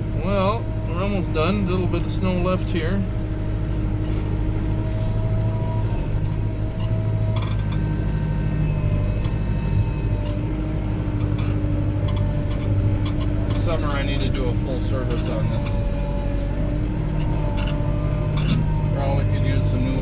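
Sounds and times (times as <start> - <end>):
tractor diesel engine droning: 0.0 - 20.0.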